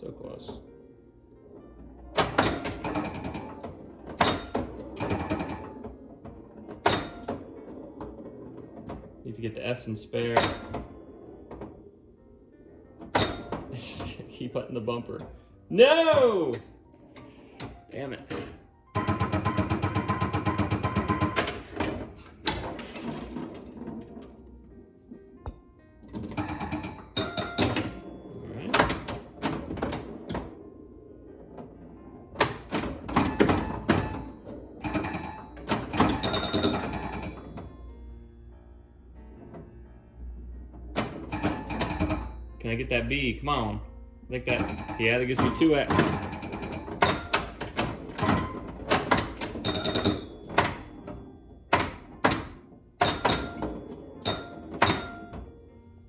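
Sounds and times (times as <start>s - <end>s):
pinball machine mechanical clacks: 1.4s - 43.7s, 44.3s - 56.0s
electronic ringing tones: 2.8s - 3.6s, 5.0s - 5.8s, 34.8s - 37.6s, 44.5s - 47.3s.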